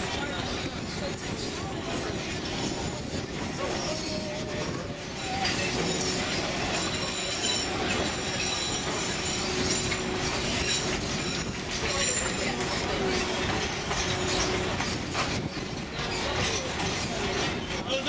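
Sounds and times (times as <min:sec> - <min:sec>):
train wheels rumbling on rails: 0:00.0 - 0:18.0
high wheel squeal: 0:05.2 - 0:17.7.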